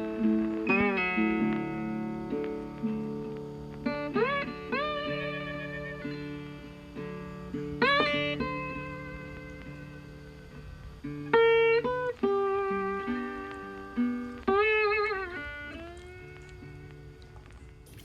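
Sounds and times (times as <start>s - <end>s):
plucked guitar music: 0.0s - 18.0s.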